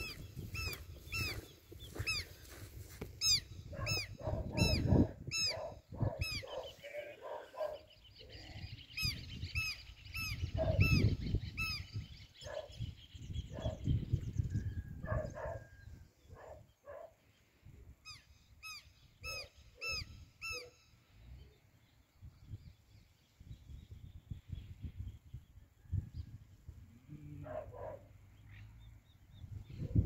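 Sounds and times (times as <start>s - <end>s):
bird harsh high calls: 0.0s - 2.6s, 3.2s - 12.9s, 18.0s - 21.0s
wind rumble on microphone: 0.0s - 6.6s, 8.2s - 16.8s, 22.1s - 28.0s, 28.9s - 30.0s.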